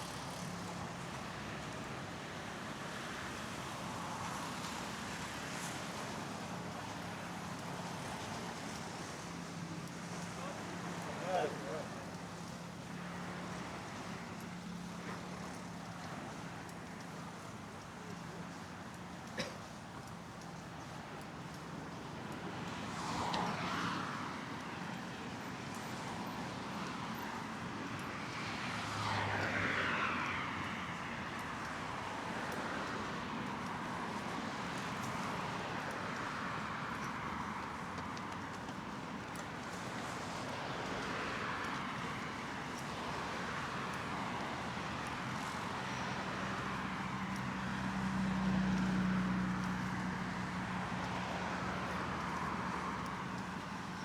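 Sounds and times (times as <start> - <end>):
cars passing: 28.4 - 33.4, 45.6 - 54.0.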